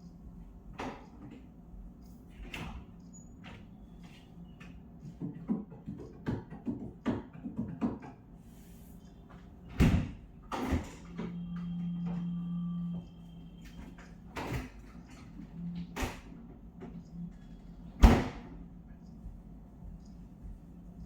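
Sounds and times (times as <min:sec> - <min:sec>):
low steady hum: 0:08.4 - 0:21.0.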